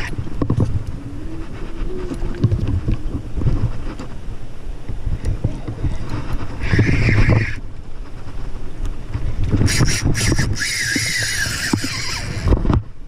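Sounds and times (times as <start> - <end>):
wind rumble on microphone: 0.0 - 13.0
reel clicks: 8.8 - 12.8
fishing reel drag whirring: 9.6 - 12.6.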